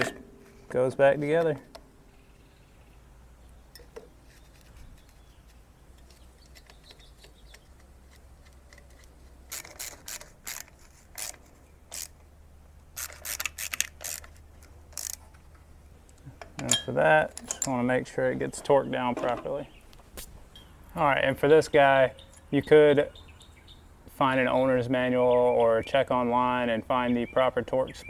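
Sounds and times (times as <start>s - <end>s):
ratchet wrench clicking: 8.8s - 12.2s, 13.0s - 15.2s.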